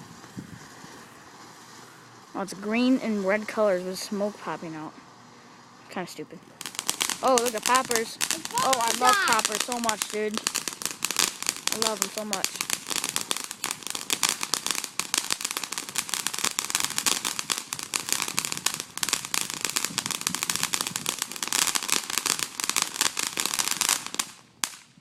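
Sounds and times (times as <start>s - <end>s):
firework poppers crackling: 0.0s - 25.0s.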